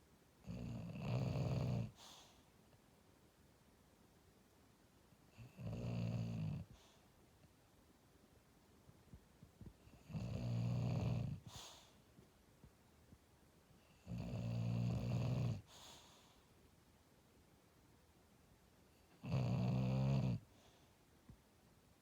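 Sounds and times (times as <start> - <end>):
dog snoring: 0.4 - 2.4, 5.3 - 7.0, 9.8 - 11.9, 13.9 - 16.2, 19.1 - 20.6
dog breathy exhale: 1.9 - 2.5, 11.4 - 12.0, 15.6 - 16.5.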